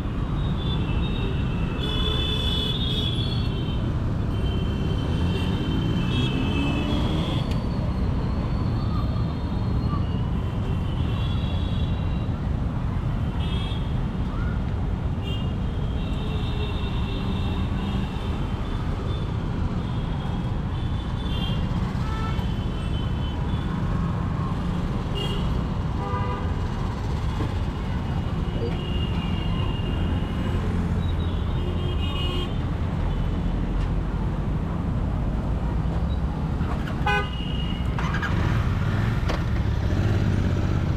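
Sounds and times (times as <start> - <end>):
vehicle horns tooting: 37.0 - 38.2.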